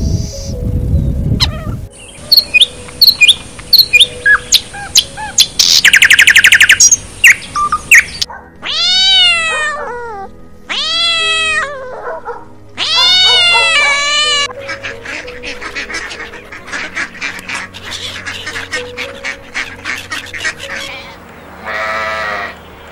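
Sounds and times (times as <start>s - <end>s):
songbird chirps and trill: 0.0s - 22.9s
cat meowing: 8.6s - 12.0s, 12.8s - 14.5s.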